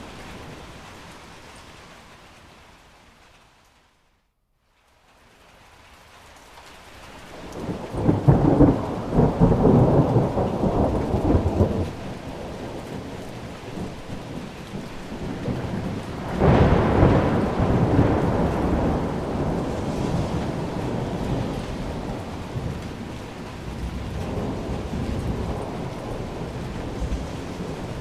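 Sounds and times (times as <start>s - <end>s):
steady rain: 0.0s - 28.0s
rolling thunder: 7.4s - 28.0s.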